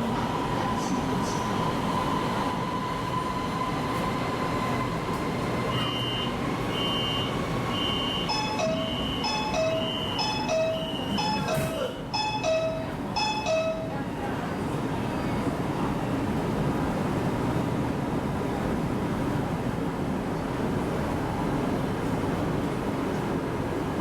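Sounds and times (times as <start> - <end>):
metro car running noise: 0.0 - 24.0
short electronic beep: 5.8 - 13.8.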